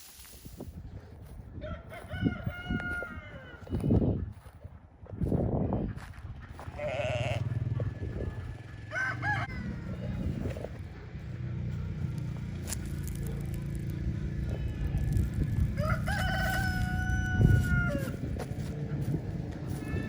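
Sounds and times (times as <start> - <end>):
rooster or chicken calls: 1.6 - 4.0, 8.9 - 10.6, 15.6 - 18.4
steady low hum: 4.8 - 20.0.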